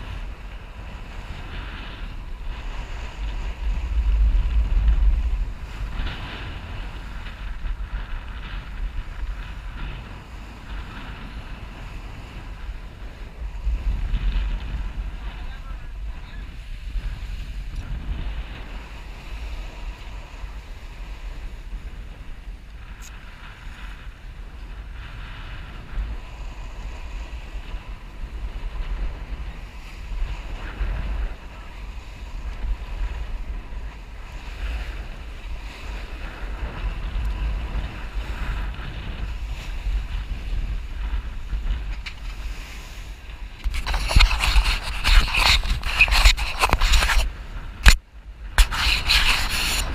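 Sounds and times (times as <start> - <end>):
wind buffeting microphone: 0.0 - 49.9
rubbing scrape: 43.6 - 48.0, 48.6 - 49.9.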